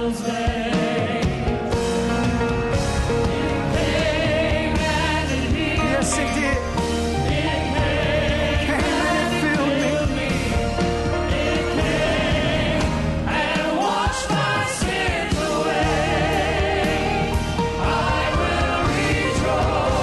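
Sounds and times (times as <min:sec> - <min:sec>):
gospel singing with vibrato: 0:00.0 - 0:20.0
band playing sustained chords: 0:01.2 - 0:13.3.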